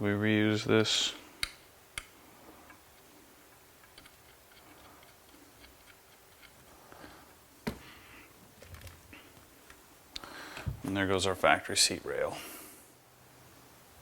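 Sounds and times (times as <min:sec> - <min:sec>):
sharp clicks of parts handled: 0:01.4 - 0:06.7.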